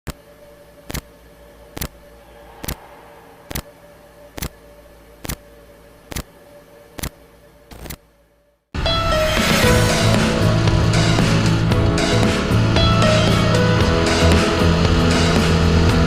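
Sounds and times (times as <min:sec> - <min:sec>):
faint steady hum: 0:00.1 - 0:08.7.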